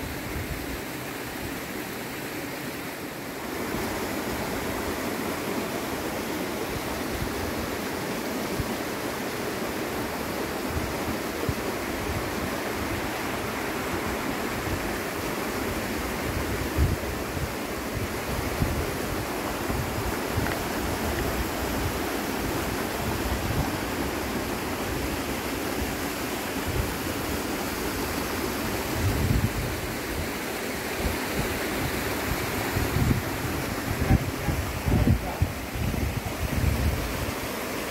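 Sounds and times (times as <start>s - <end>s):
steady rushing noise: 9.6s - 37.9s
wind buffeting microphone: 31.4s - 37.3s.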